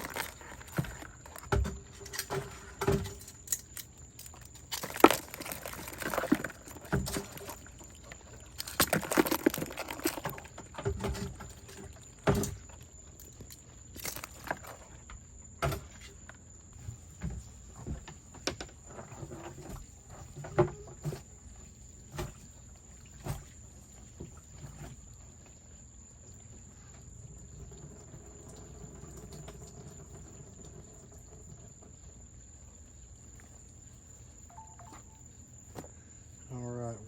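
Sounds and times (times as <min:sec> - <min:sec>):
handling noise: 0:00.0 - 0:15.1
crabs knocking and clattering: 0:00.0 - 0:16.4.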